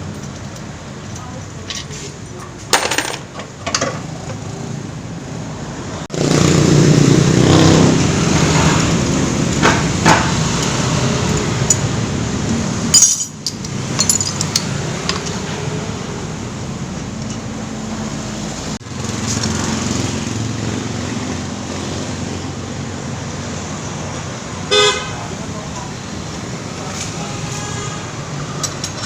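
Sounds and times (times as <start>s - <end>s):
scooter engine running: 6.1s - 9.4s.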